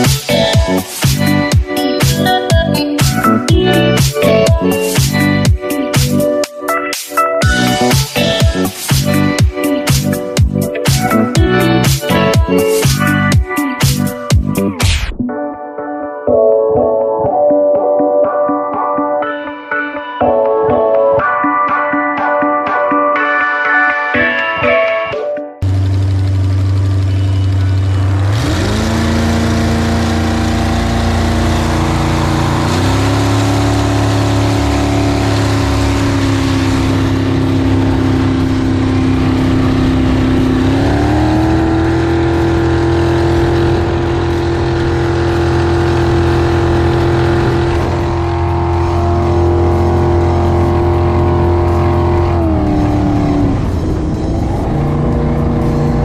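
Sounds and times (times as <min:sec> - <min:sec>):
boat engine running loud: 0:25.6 - 0:56.0.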